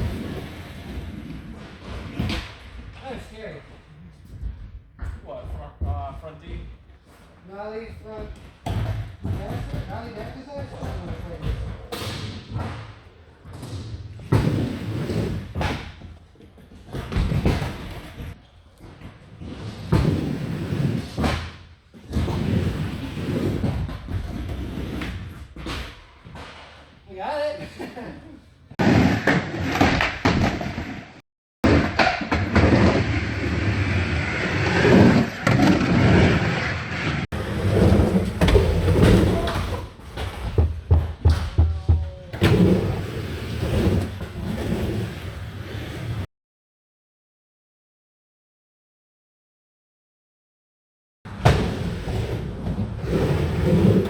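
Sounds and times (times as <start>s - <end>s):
skateboard rolling: 0.0s - 2.8s, 10.7s - 26.9s, 28.7s - 46.3s, 51.3s - 54.0s
skateboard clacks: 31.7s - 44.0s.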